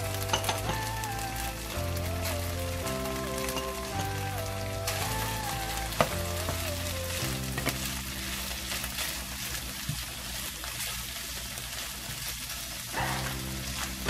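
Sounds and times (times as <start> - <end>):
background music: 0.0 - 9.3, 13.0 - 14.0
food sizzling in a frying pan: 0.0 - 14.0.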